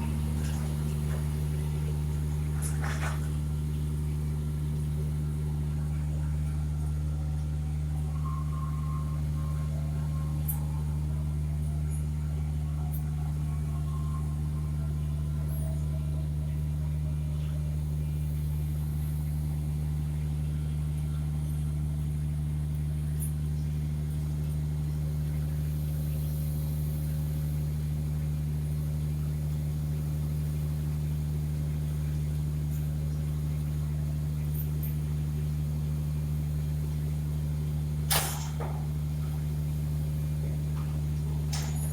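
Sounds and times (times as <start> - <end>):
faint falling whine: 38.0 - 41.9.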